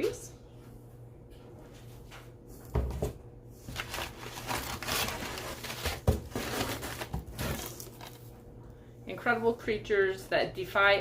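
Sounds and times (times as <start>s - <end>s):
paper and packaging rustling: 3.6s - 8.3s.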